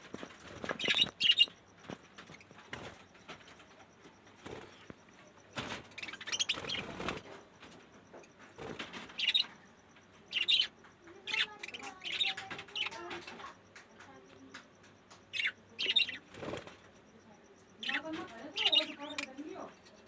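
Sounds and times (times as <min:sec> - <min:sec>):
budgerigars chirping: 0:00.4 - 0:03.1, 0:05.6 - 0:07.3, 0:08.6 - 0:09.6, 0:10.3 - 0:13.5, 0:15.2 - 0:16.8, 0:17.8 - 0:19.7.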